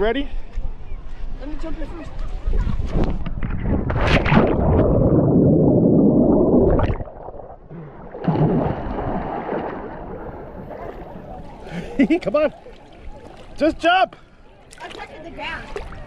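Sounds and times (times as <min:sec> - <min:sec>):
water sloshing: 0:03.0 - 0:14.0, 0:14.6 - 0:16.0
underwater bubbling and churning: 0:03.1 - 0:13.5
splash into water: 0:03.3 - 0:11.7.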